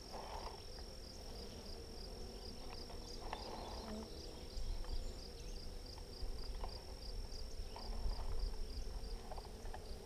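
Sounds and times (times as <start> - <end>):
honeybees humming: 0.0 - 10.0.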